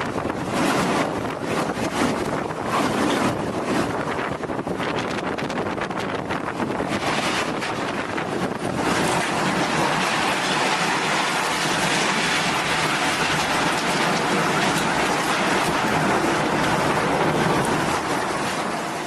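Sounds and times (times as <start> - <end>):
water rushing loudly: 6.6 - 19.0.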